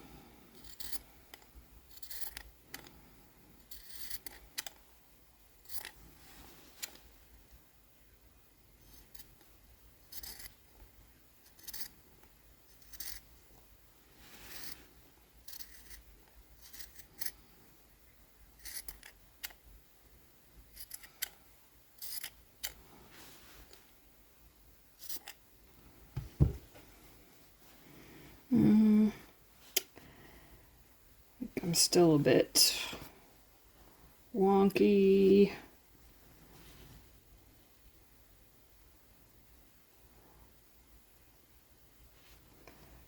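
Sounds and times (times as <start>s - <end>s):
thump: 26.2s - 26.8s.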